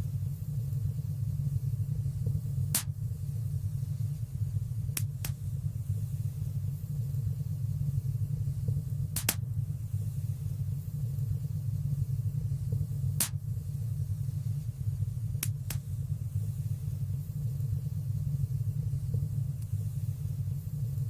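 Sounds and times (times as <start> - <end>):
low rumble of flames: 0.0 - 21.0
fire crackling pops: 2.3 - 3.3, 4.8 - 5.6, 9.0 - 9.7, 12.6 - 13.7, 15.2 - 16.5.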